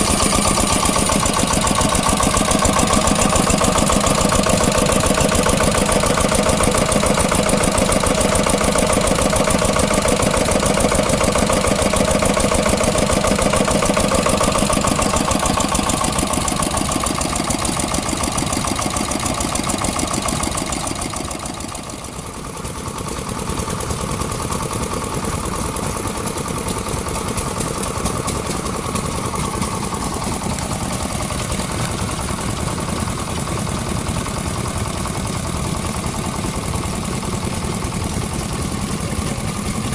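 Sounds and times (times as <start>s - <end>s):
engines running fast: 0.0s - 22.2s.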